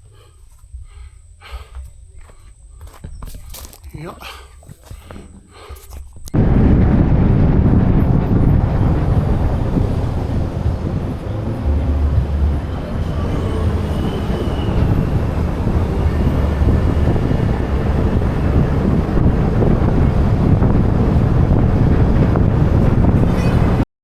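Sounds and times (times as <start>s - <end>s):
wind noise: 0.7s - 23.8s
road noise: 1.5s - 23.8s
car engine rumble: 5.9s - 23.8s.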